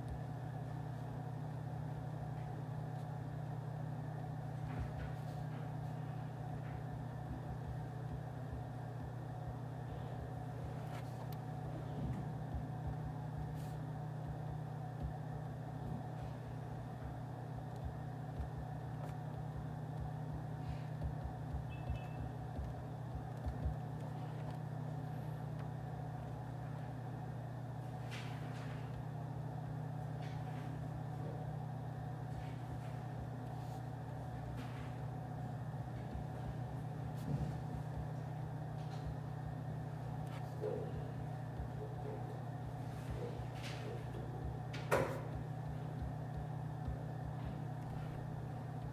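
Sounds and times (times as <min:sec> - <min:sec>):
office room hum: 0:00.0 - 0:48.9
faint clicks and taps: 0:10.2 - 0:15.3, 0:17.0 - 0:24.7, 0:35.8 - 0:48.9.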